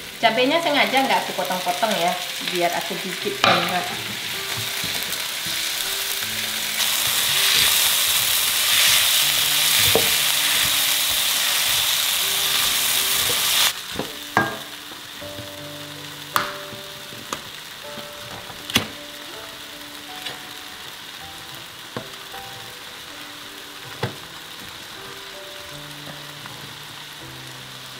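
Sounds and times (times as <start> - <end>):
vegetables sizzling in a wok: 0.0 - 27.9
spatula stirring: 3.4 - 14.7.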